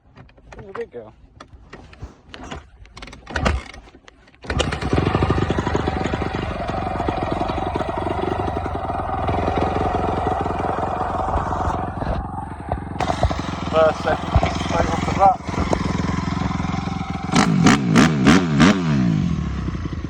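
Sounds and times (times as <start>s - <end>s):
dirt bike kick-start: 1.4s - 20.0s
dirt bike engine running: 4.5s - 20.0s.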